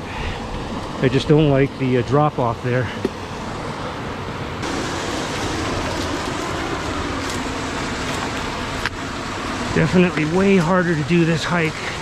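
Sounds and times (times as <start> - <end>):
creek water rushing over rocks: 3.2 - 12.0.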